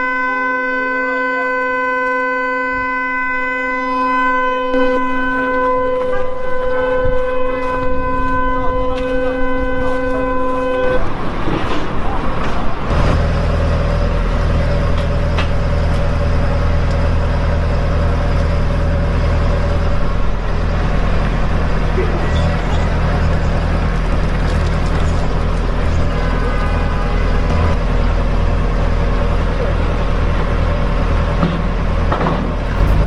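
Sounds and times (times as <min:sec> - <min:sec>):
vehicle horn: 0:00.0 - 0:11.2, 0:25.9 - 0:27.8, 0:32.4 - 0:33.0
low engine drone: 0:12.0 - 0:33.0.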